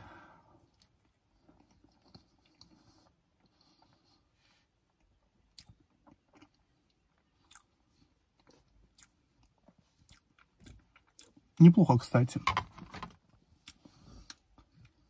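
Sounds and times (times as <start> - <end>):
closed-mouth chewing: 0.7 - 4.0, 4.9 - 11.4.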